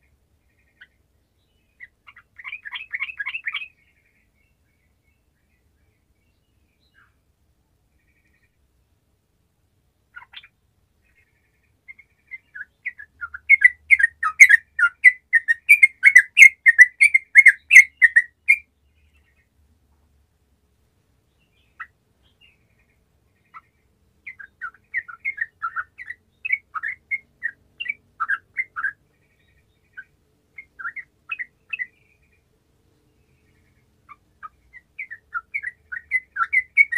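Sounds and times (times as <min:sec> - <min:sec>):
bulbul singing: 0:11.9 - 0:19.4, 0:21.4 - 0:32.4, 0:33.2 - 0:36.9.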